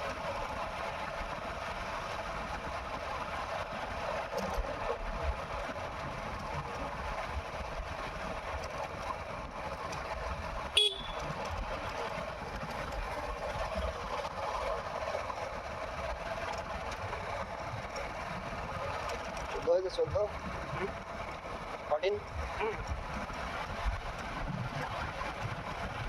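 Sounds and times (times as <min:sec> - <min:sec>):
vehicle running noise: 0:00.0 - 0:26.0
horn toot: 0:10.8 - 0:11.2.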